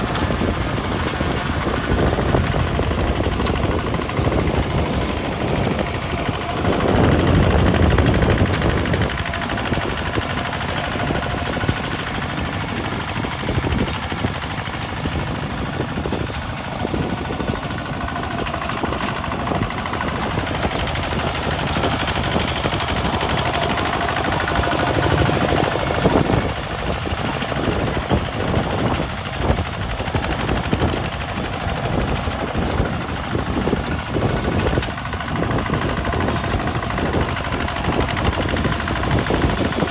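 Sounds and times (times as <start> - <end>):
single-cylinder diesel engine running: 0.0 - 39.9.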